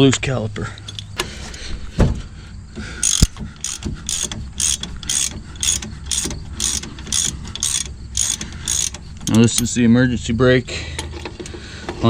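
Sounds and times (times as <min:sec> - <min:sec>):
ratchet wrench clicking: 0:00.8 - 0:01.2, 0:03.0 - 0:09.8.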